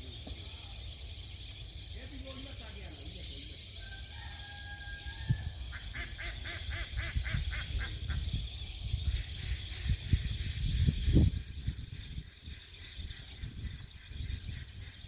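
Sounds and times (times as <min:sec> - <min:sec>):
waterfowl honking calls: 0:05.7 - 0:08.2.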